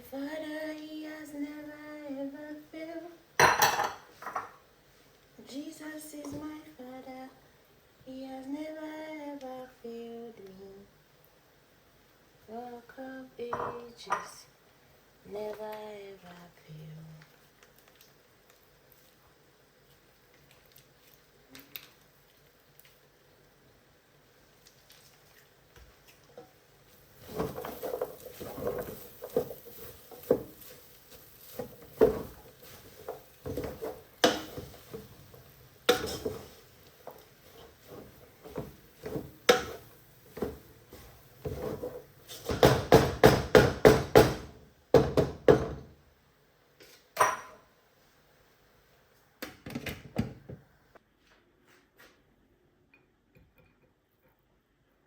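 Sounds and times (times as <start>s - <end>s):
dishes and utensils clinking: 3.4s - 4.6s.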